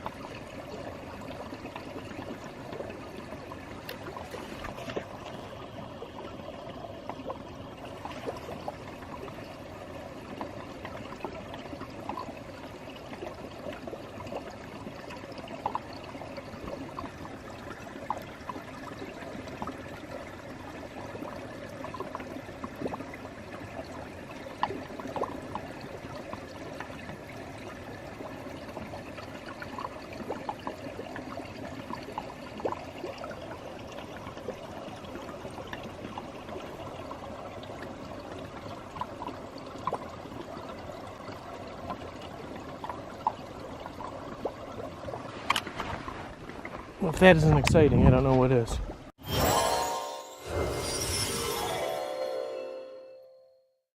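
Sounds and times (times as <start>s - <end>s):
water trickling and burbling: 0.0s - 48.0s, 48.9s - 53.1s
small splashy ticks: 3.8s - 5.4s.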